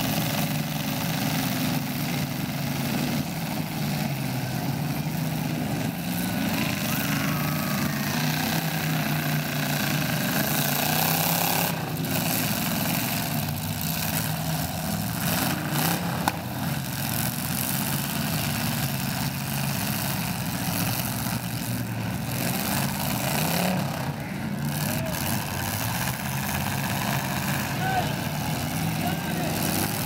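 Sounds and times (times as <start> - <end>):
car engines idling and revving: 0.0 - 30.0.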